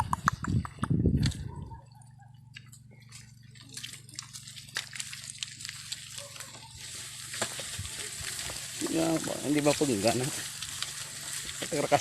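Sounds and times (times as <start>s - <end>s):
low steady hum: 0.0s - 12.0s
faint clicks and drips: 1.9s - 6.7s.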